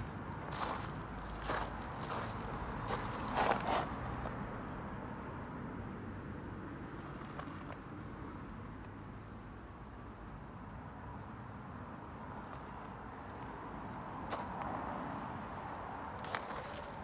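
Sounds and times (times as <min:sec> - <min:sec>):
short scuffs or rustles: 0:16.2 - 0:17.0.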